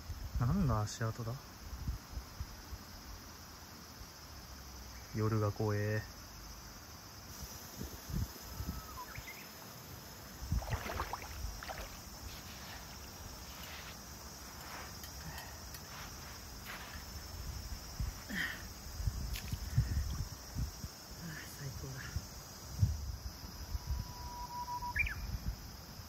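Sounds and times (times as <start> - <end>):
insects chirping: 0.0 - 26.0
rustles and crunches: 10.5 - 18.4.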